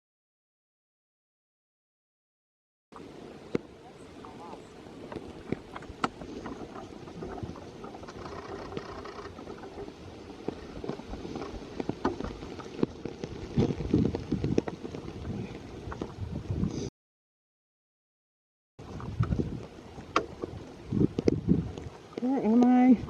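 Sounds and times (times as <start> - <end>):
steady rain: 10.0 - 16.2
raindrops ticking on surfaces: 10.4 - 16.2.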